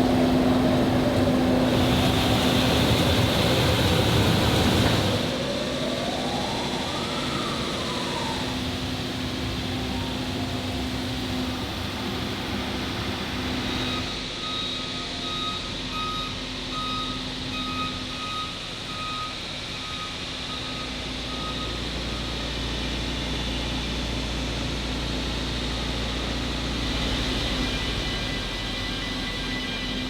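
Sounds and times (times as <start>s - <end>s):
machinery hum: 0.0s - 30.0s
electronic warning beeps: 10.3s - 21.8s.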